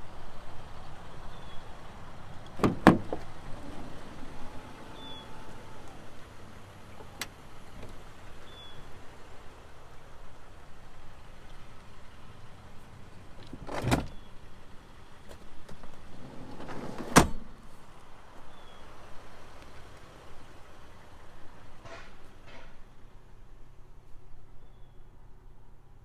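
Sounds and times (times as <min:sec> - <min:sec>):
van door clunk: 0:01.2 - 0:09.1, 0:11.2 - 0:18.0
van door latching shut: 0:01.4 - 0:08.9, 0:12.4 - 0:14.6, 0:15.2 - 0:17.8.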